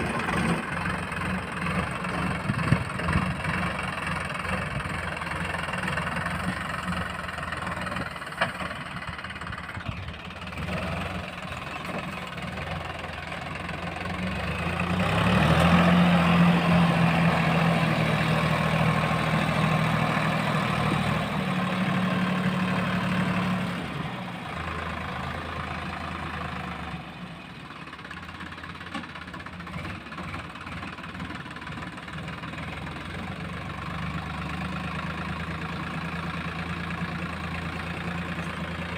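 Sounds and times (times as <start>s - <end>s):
diesel engine idling and revving: 0.0s - 38.9s.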